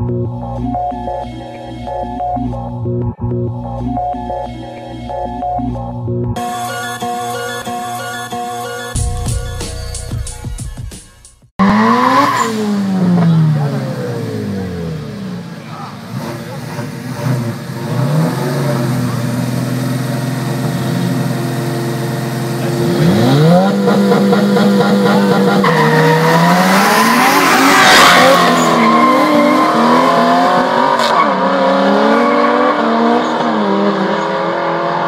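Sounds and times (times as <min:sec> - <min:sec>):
car engines revving: 0:11.6 - 0:35.0.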